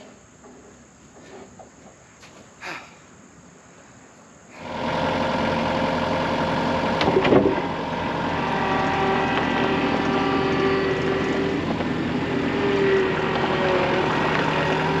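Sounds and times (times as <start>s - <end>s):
engine starting and running: 4.5s - 15.0s
engine clatter: 4.6s - 15.0s.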